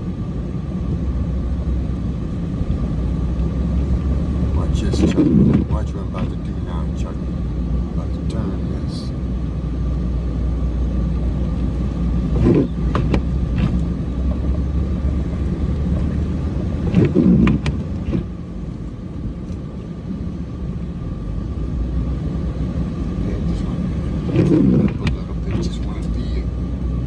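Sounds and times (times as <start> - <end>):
diesel truck engine running: 0.0 - 27.0
knocks and thumps: 3.9 - 6.5, 11.6 - 18.4, 24.3 - 26.0.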